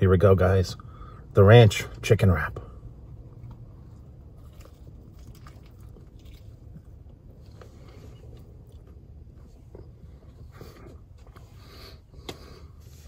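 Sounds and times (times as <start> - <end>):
person chewing food: 3.3 - 11.4.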